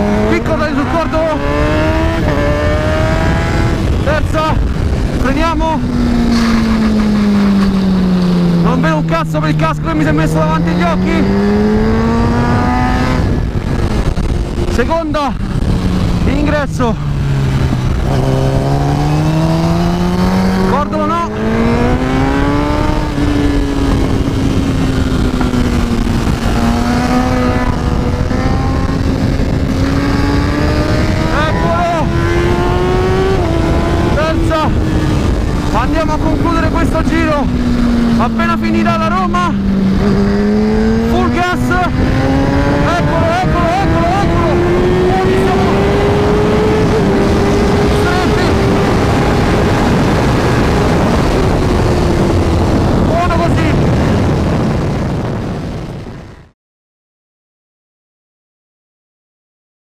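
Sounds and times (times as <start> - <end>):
motorcycle engine revving: 0.0 - 56.6
wind rush on microphone: 0.0 - 56.6.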